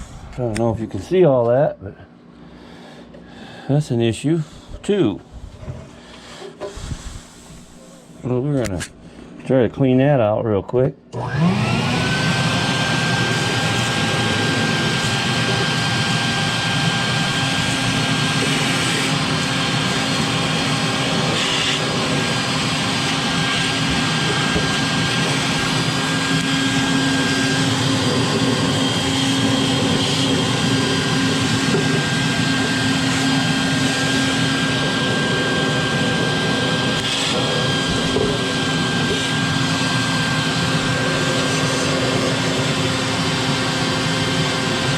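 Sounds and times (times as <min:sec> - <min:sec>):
vacuum cleaner motor whine: 0:11.1 - 0:44.9.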